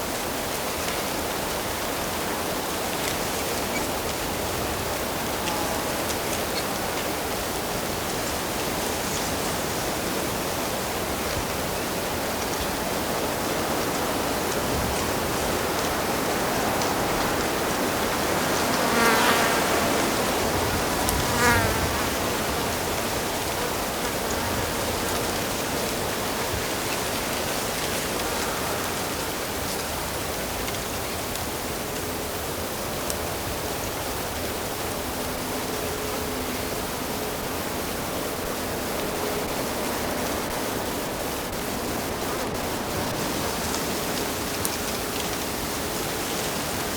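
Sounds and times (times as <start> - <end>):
flying insect buzzing: 18.0 - 26.0.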